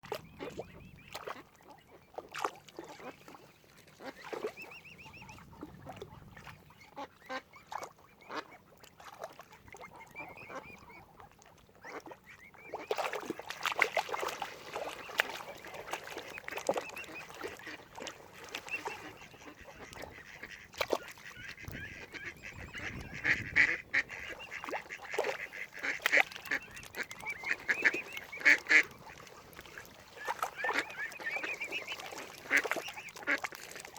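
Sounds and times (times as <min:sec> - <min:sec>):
waterfowl quacking and honking: 0:03.9 - 0:08.7, 0:11.8 - 0:33.9.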